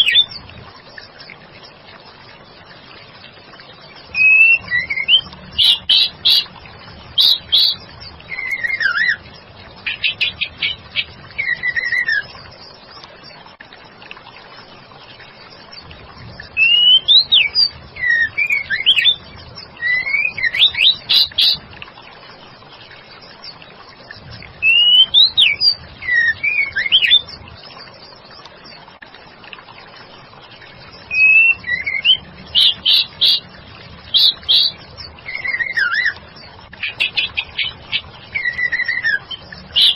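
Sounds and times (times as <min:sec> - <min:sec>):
bird chirping and whistling: 0:00.0 - 0:00.4, 0:04.1 - 0:06.5, 0:07.1 - 0:09.2, 0:09.8 - 0:12.3, 0:16.6 - 0:19.2, 0:19.8 - 0:21.6, 0:24.6 - 0:27.3, 0:31.1 - 0:33.4, 0:34.1 - 0:36.2, 0:36.8 - 0:39.9.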